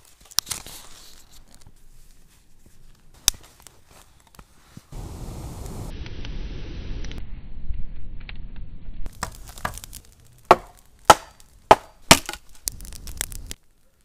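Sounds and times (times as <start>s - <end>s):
blade chopping wood: 9.1s - 12.8s.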